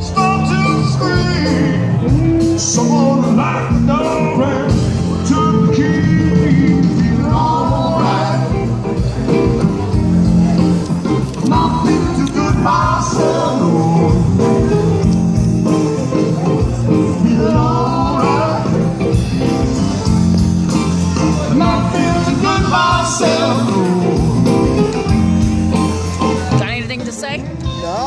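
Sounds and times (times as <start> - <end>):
person singing: 0.0 - 9.4, 11.4 - 15.1, 15.7 - 20.1, 21.0 - 25.4
drums keeping a beat: 0.0 - 28.0
live rock band playing: 0.0 - 28.0.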